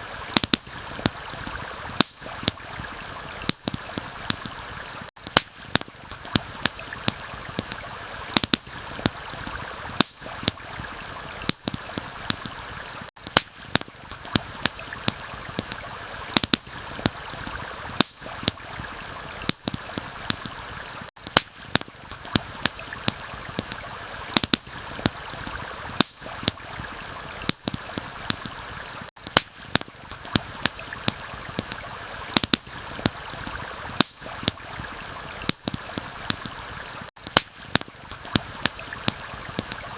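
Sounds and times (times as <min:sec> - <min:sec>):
campfire crackling and popping: 0:00.0 - 0:39.9
stream water flowing: 0:00.0 - 0:39.9.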